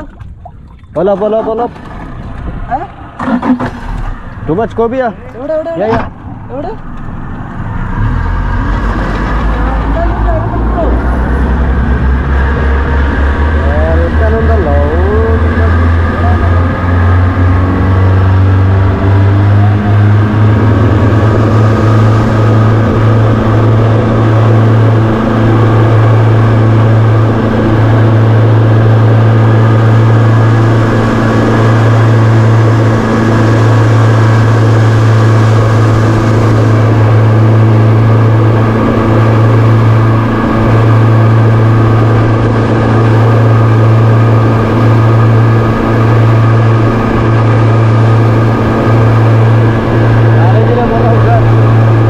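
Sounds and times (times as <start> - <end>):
boat engine droning: 0.0 - 52.0.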